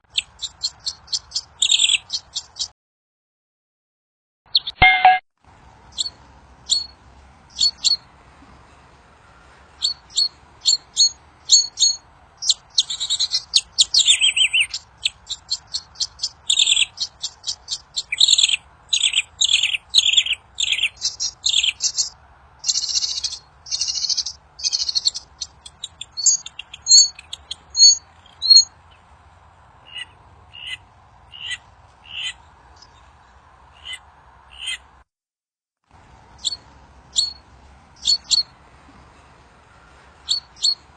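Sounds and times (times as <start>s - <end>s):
songbird singing: 0.0s - 2.7s, 4.5s - 34.9s, 36.2s - 40.9s.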